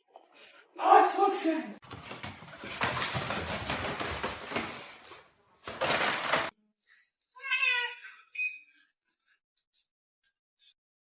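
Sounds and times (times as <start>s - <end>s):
cat meowing: 7.4s - 8.3s.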